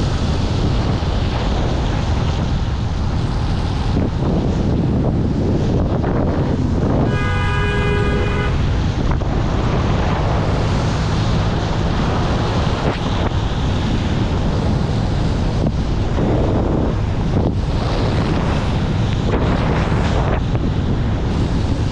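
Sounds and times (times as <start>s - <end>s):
engine and road rumble: 0.0s - 21.9s
wind buffeting microphone: 0.0s - 21.9s
car horn: 6.9s - 8.9s.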